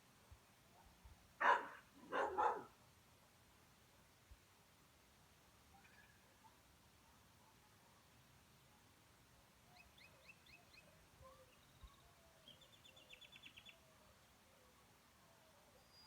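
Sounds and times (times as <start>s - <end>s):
faint bird chirps: 5.7s - 7.2s, 9.6s - 16.0s.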